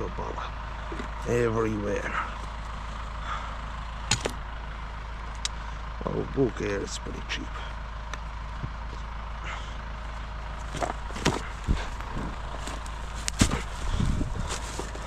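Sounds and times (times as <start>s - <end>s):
steady low rumble: 0.0s - 15.0s
knocks and clicks of gear handled: 4.1s - 4.4s, 10.6s - 13.9s.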